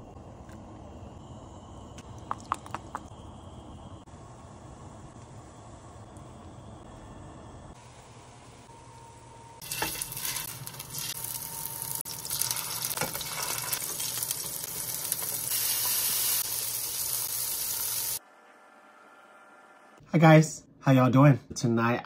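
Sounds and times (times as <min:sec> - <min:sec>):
fish patties sizzling in oil: 0:09.6 - 0:18.2.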